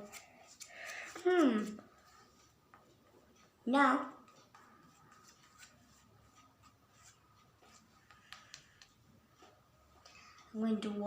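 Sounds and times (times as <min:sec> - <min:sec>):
paintbrush tapping and scraping canvas: 0:04.2 - 0:09.6.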